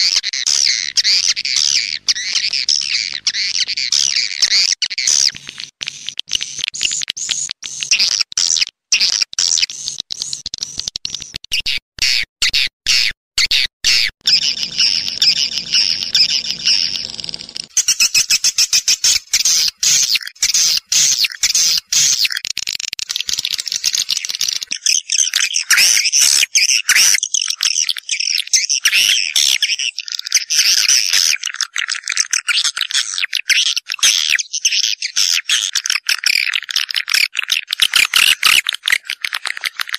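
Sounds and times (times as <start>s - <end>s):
swiftlet calls twittering and clicking: 0.0s - 11.7s, 14.0s - 39.9s.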